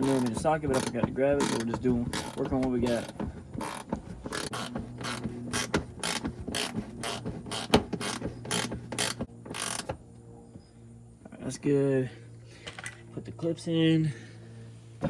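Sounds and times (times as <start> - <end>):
hand ratchet clicking: 0.0 - 10.0.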